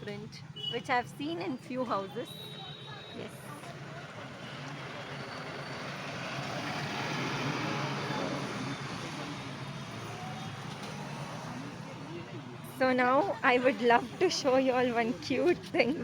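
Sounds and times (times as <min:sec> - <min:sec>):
road vehicle passing: 0:03.3 - 0:16.0.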